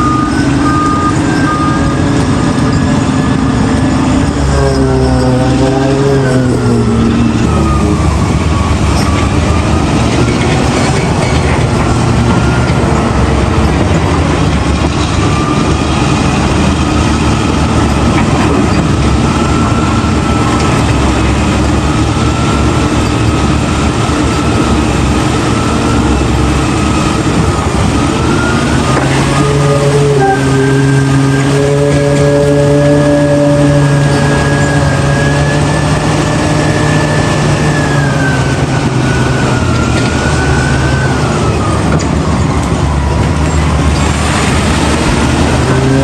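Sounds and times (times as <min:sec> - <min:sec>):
heavy diesel machinery engine: 0:00.0 - 0:46.0.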